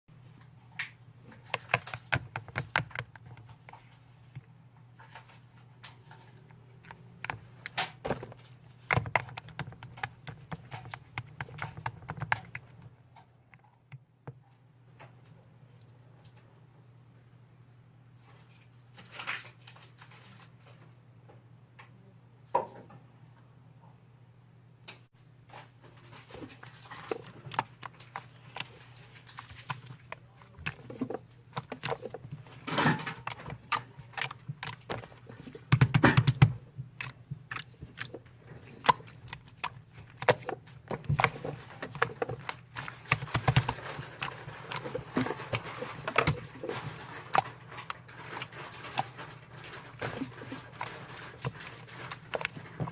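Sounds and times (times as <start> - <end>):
slime squishing with wet clicks: 0.2 - 14.1, 26.0 - 52.9.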